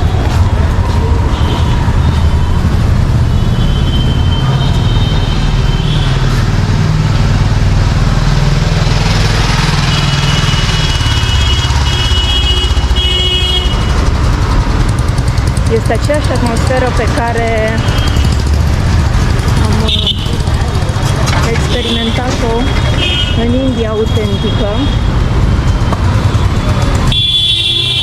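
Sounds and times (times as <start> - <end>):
vehicle engines rumbling: 0.0 - 28.0
car horns honking: 9.7 - 14.0, 19.6 - 20.6, 21.2 - 25.2, 26.2 - 28.0.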